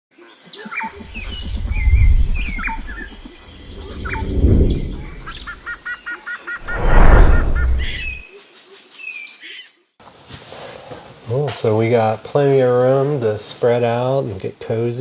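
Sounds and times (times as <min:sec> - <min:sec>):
deep rumble: 0:01.0 - 0:05.6, 0:06.6 - 0:08.2
songbirds chirping and trilling: 0:01.0 - 0:05.6.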